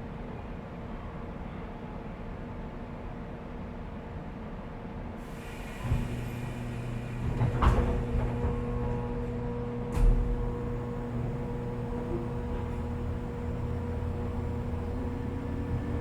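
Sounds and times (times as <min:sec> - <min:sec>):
electrical hum of train motor: 0:05.2 - 0:16.0.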